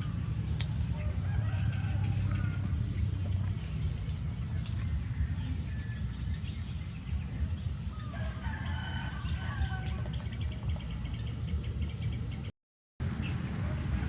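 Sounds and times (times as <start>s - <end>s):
rooster crowing: 0.0s - 2.9s, 7.9s - 10.2s
low rumble: 0.0s - 8.1s.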